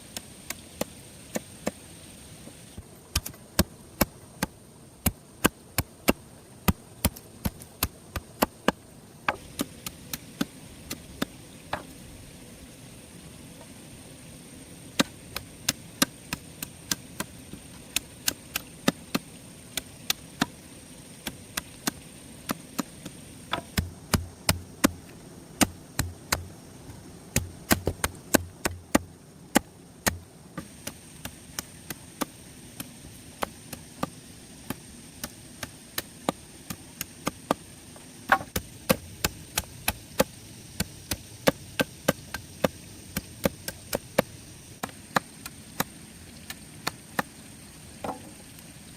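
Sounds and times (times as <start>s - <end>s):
sharp chopping strikes: 3.1s - 11.9s, 14.9s - 17.3s, 21.2s - 25.0s, 25.6s - 26.5s, 27.3s - 34.1s, 38.3s - 45.9s.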